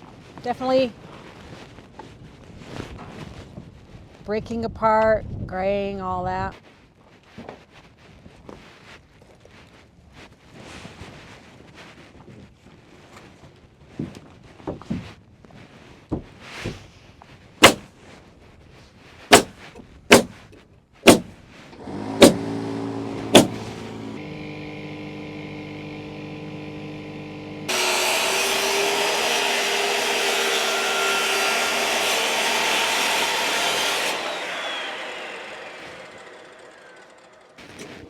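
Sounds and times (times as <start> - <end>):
sharp knocks: 17.6 - 17.8, 19.3 - 20.3, 21.1 - 21.3, 22.2 - 22.5, 23.3 - 23.7
loud rough running sound: 21.1 - 25.0
machine running: 23.2 - 29.3, 32.0 - 37.6.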